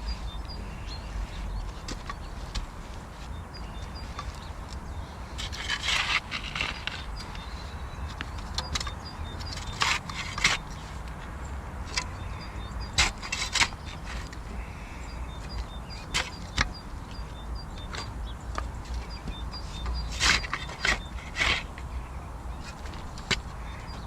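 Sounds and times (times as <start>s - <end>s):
steady low rumble: 0.0s - 9.5s.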